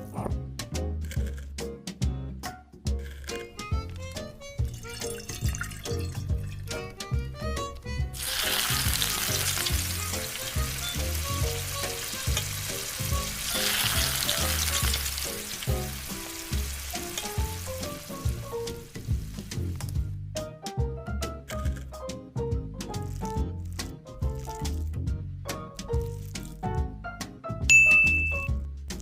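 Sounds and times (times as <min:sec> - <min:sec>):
background music with beat: 0:01.6 - 0:15.0
food sizzling in hot oil: 0:08.2 - 0:20.0.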